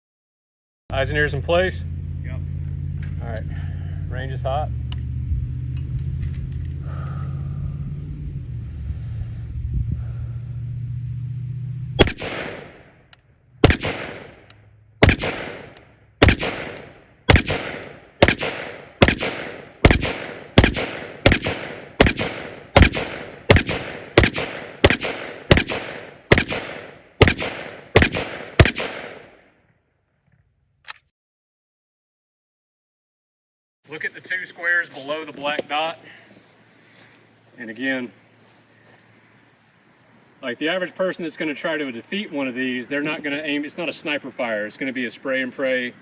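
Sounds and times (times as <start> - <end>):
rifle shots with echo: 12.0 - 13.0, 13.6 - 29.5.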